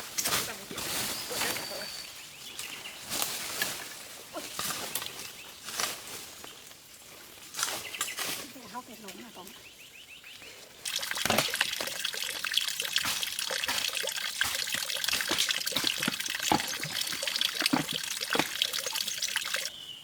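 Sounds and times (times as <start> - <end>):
running water splashing: 10.8 - 19.7.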